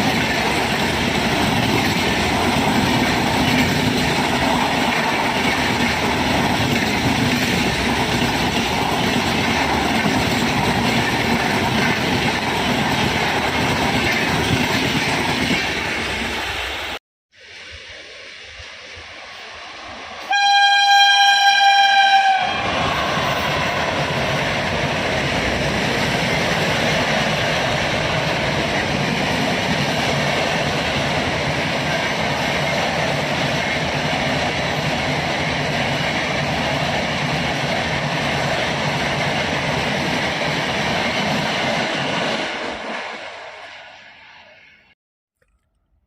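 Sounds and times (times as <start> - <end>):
train passing at speed: 0.0 - 45.0
locomotive horn blast: 20.2 - 23.7.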